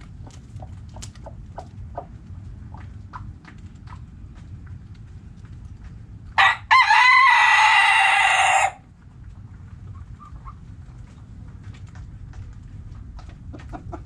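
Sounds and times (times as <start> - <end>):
rooster crowing: 6.4 - 8.8.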